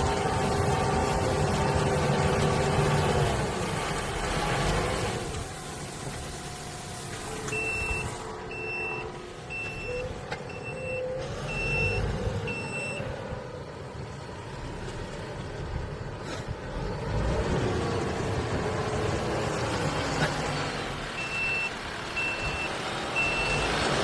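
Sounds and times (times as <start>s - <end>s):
tractor engine running: 0.0s - 24.0s
short high electronic beeps: 7.6s - 13.0s.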